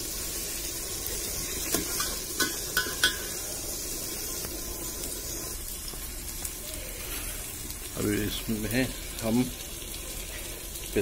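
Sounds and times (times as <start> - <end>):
onions sizzling in hot oil: 0.0 - 11.0
metal ladle knocking against pot: 2.0 - 3.3.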